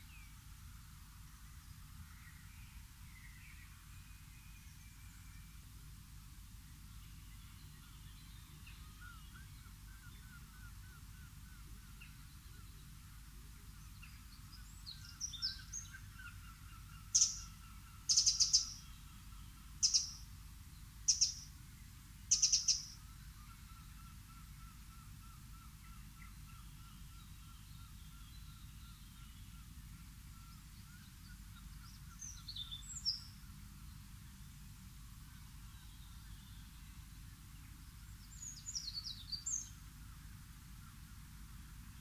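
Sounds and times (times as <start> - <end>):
faint distant birdsong: 0.0 - 42.0
songbird sharp high calls: 14.6 - 20.3, 21.1 - 21.5, 22.3 - 29.7.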